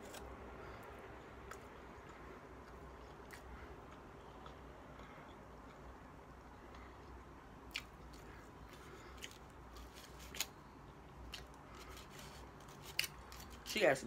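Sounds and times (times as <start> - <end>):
chewing food: 0.0 - 13.7
low steady hum: 0.0 - 14.0.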